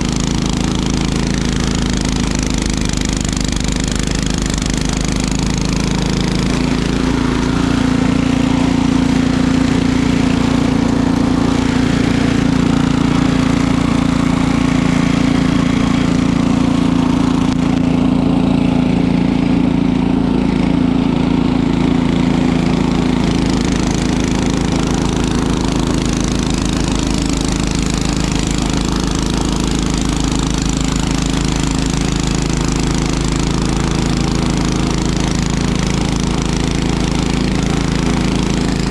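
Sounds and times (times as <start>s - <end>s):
small gasoline engine running: 0.0s - 38.9s.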